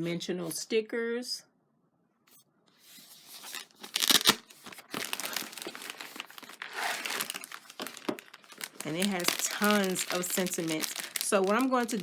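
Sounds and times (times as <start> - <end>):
plastic packaging crinkling: 3.3 - 12.0.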